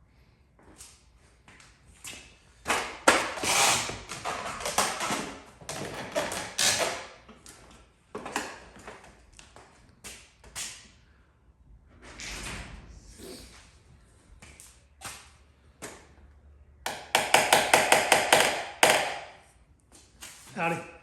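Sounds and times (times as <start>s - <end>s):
hand tools tapping metal panel: 16.9s - 19.3s.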